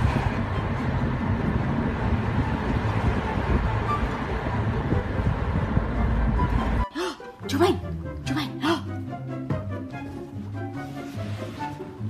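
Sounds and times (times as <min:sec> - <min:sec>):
wind rushing past car window: 0:00.0 - 0:06.9
low road noise: 0:00.0 - 0:12.0.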